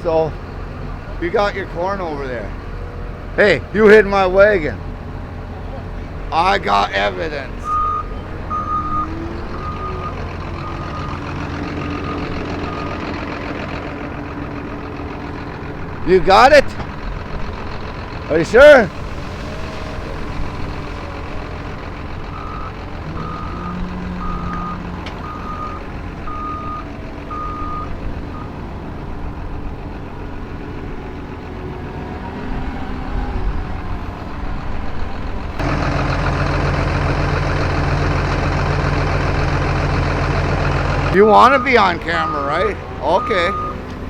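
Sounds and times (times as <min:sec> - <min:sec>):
diesel engine running: 0:00.0 - 0:44.0
reversing alarm beeping: 0:07.6 - 0:13.0, 0:22.3 - 0:28.5, 0:41.1 - 0:43.8.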